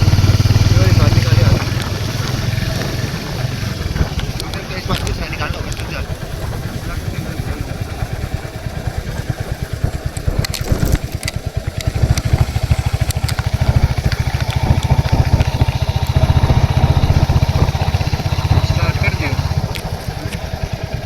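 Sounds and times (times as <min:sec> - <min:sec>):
motorcycle engine idling: 0:00.0 - 0:21.0
sharp clicks: 0:08.4 - 0:21.0.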